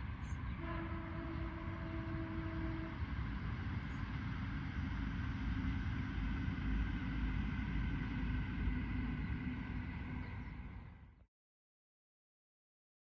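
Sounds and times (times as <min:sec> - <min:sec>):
train rumbling on rails: 0:00.0 - 0:11.2
train horn blast: 0:00.5 - 0:03.2.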